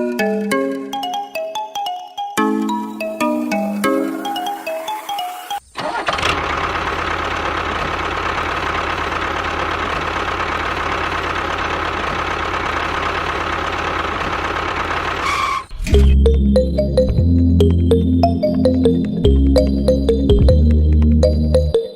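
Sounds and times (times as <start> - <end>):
chime-like music notes: 0.0 - 5.6, 15.9 - 21.9.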